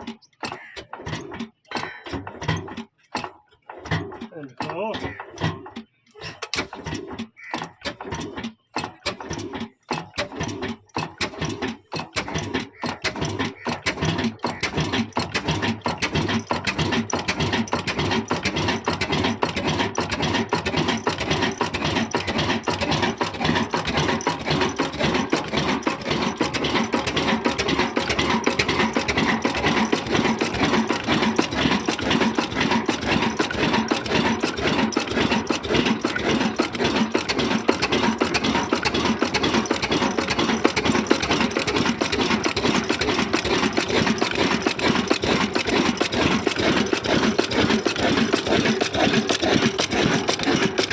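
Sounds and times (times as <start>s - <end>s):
stationary diesel engine running: 0.0s - 50.9s.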